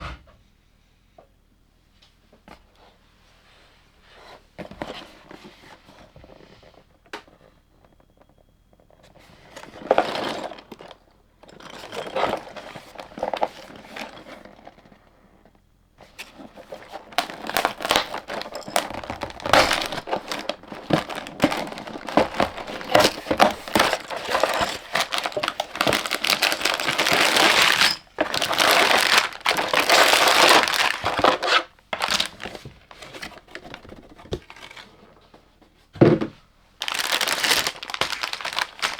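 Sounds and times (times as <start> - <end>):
plastic bags crinkling and tearing: 16.2 - 34.8, 36.8 - 38.9.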